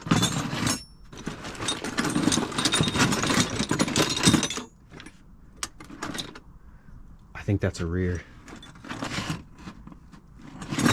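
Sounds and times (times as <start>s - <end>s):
metal parts clanking in a box: 0.0s - 6.5s, 8.4s - 10.9s.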